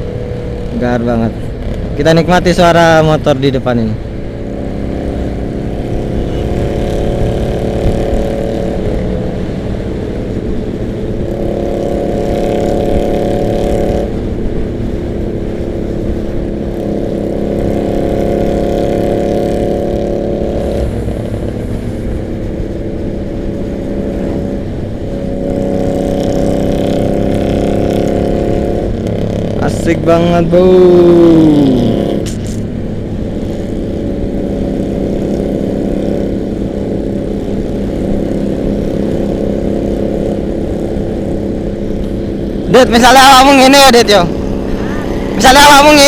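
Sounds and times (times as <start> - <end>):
road rumble: 0.0 - 46.0
wind: 0.0 - 46.0
motorcycle exhaust: 4.0 - 29.7.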